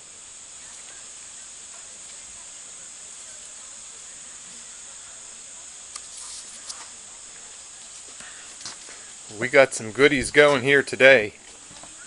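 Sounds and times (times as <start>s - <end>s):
high-pitched hiss: 0.0s - 12.0s.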